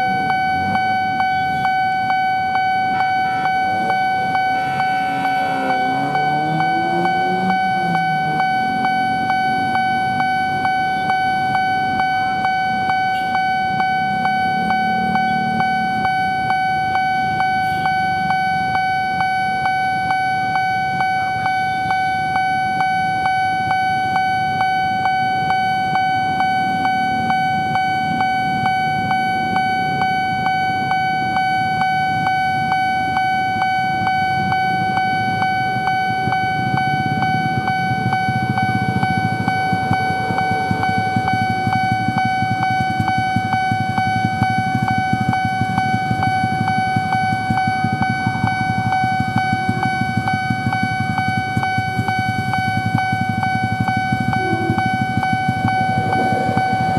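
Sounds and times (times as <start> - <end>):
level crossing bell ringing: 0.0 - 18.7, 35.7 - 56.9
road traffic: 0.0 - 56.9.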